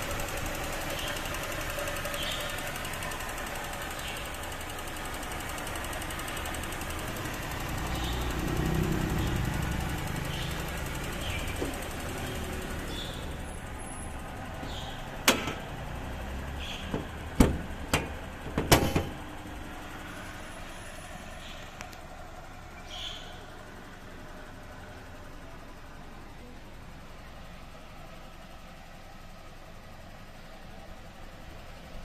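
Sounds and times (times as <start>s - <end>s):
car engine idling: 0.0s - 32.0s
sharp knocks and clacks: 15.2s - 15.8s, 16.8s - 19.2s.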